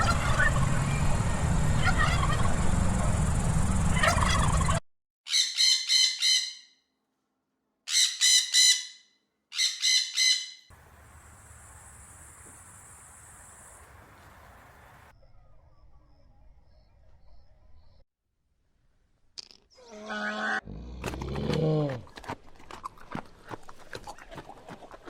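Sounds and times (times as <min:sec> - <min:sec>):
rapid pulsing bird calls: 0:00.0 - 0:04.8.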